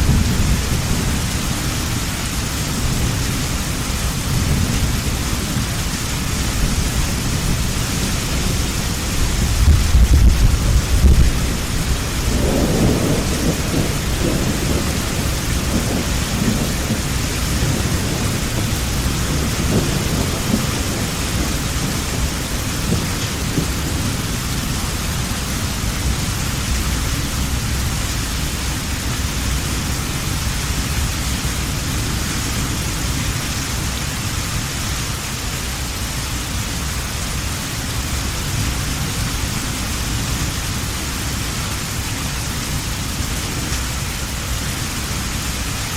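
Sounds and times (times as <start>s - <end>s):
rumble of thunder: 0.0s - 34.0s
hard rain: 0.0s - 45.9s.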